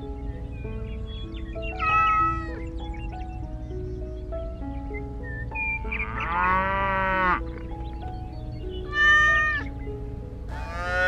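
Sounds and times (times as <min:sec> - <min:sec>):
plucked background melody: 0:00.0 - 0:11.0
drawn-out animal call: 0:01.7 - 0:02.6, 0:05.9 - 0:07.6, 0:08.7 - 0:09.7, 0:10.5 - 0:11.0
cat meow: 0:08.9 - 0:09.6.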